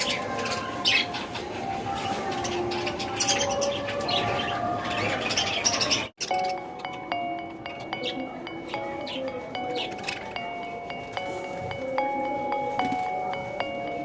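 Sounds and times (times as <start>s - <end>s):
caged birds chirping: 0.0s - 14.0s
chiming music: 5.1s - 14.0s.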